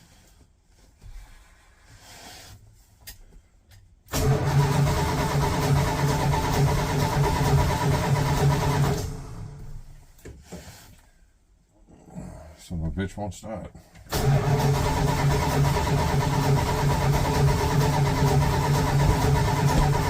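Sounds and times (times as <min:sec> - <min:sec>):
truck engine cranking: 0:04.1 - 0:09.6, 0:14.1 - 0:20.0.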